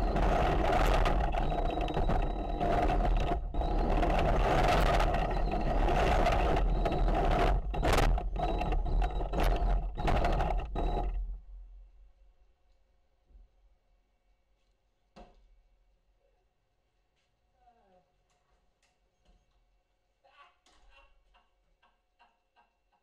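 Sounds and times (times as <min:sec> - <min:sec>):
toy tank tracks clattering: 0:00.1 - 0:11.2.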